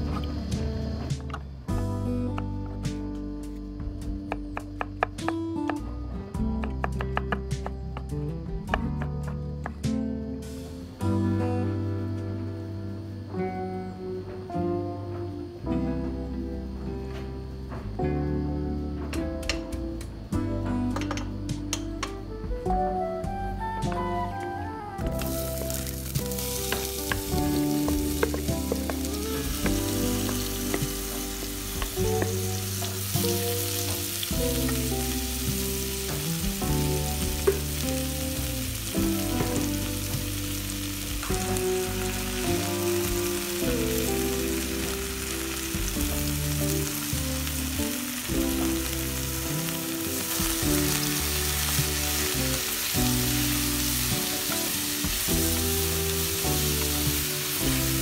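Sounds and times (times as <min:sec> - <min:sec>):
mushrooms sizzling in hot oil: 0:25.0 - 0:58.0.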